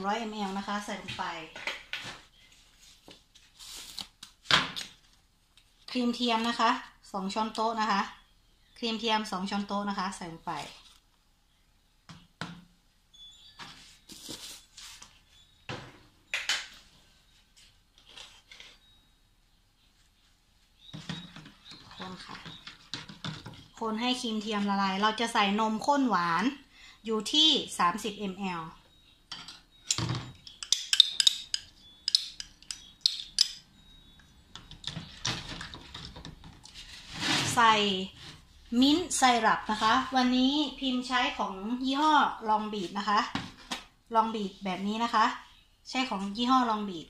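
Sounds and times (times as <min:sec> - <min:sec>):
spoon knocking against containers: 0:29.3 - 0:33.6.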